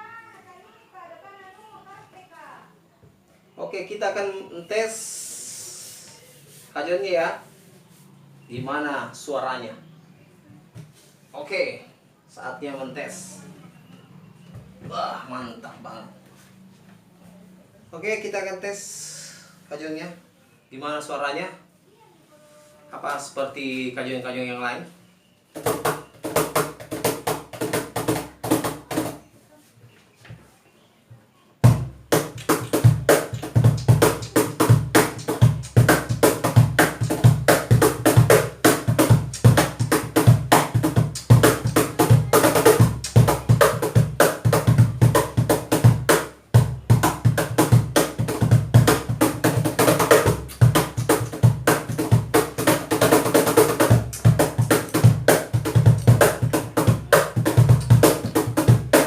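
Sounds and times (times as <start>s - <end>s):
cajon played by hand: 25.5s - 29.2s, 31.6s - 59.0s.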